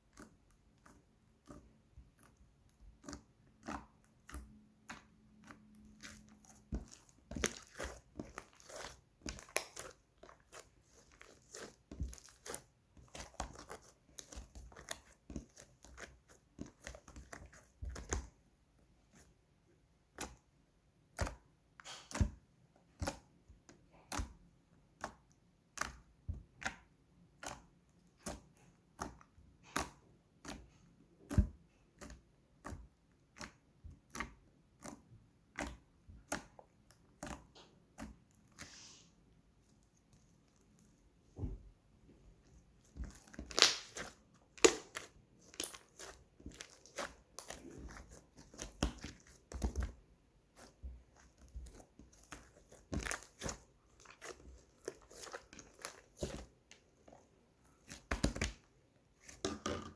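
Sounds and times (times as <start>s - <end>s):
slime squeezed with sticky pops: 42.9s - 49.9s.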